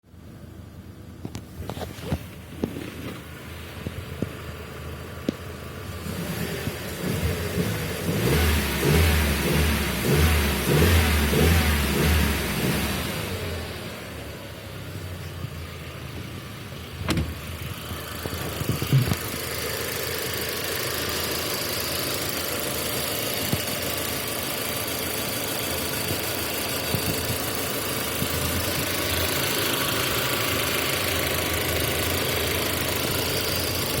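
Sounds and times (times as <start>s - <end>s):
car engine idling with knock: 0.2s - 10.0s, 14.1s - 34.0s
sharp thumps: 18.2s - 19.4s.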